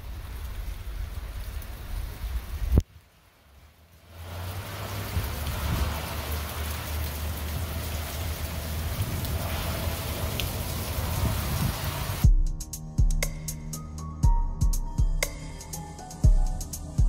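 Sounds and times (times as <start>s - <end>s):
rain pattering on wet ground: 0.0s - 12.2s
music: 12.2s - 17.0s.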